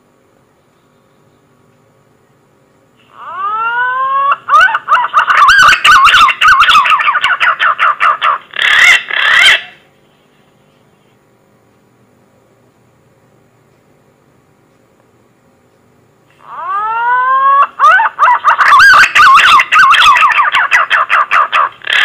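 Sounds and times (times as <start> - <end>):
background hiss: 0.0 - 5.6
pigeon call whistles: 16.5 - 22.0.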